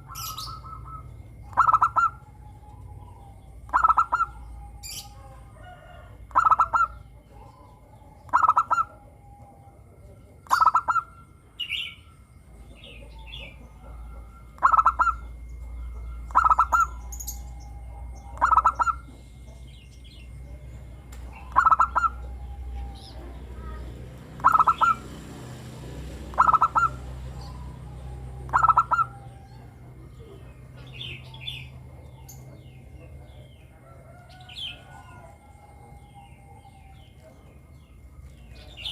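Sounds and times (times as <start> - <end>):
dove cooing: 0.0 - 38.9
small birds chirping: 0.0 - 38.9.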